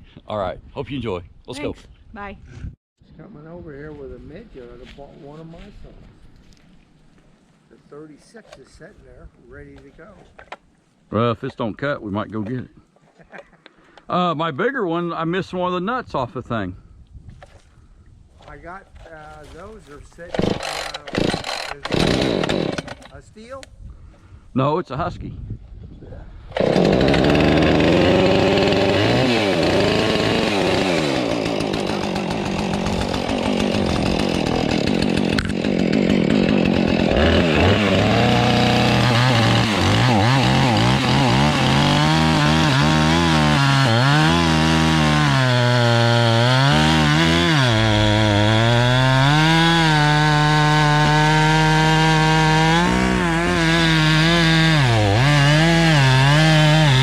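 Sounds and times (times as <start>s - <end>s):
chainsaw cutting a log: 20.3s - 23.1s, 26.5s - 57.0s.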